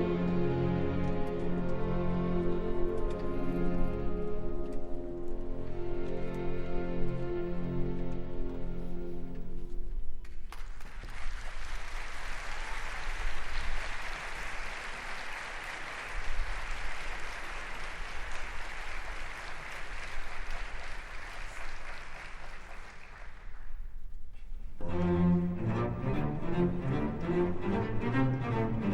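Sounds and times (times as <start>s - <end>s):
music: 0.0s - 10.9s, 24.8s - 28.9s
audience applauding: 10.2s - 24.0s.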